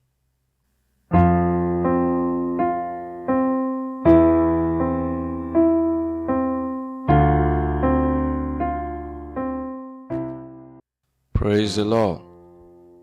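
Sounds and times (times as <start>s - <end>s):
slow piano chords: 1.1s - 10.9s.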